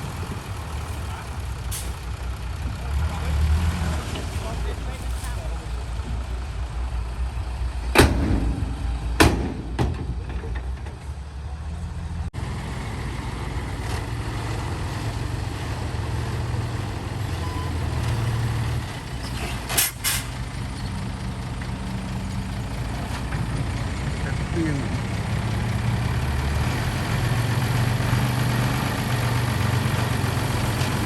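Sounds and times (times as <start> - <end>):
diesel truck engine running: 0.0 - 31.0
sharp bangs: 8.0 - 10.6.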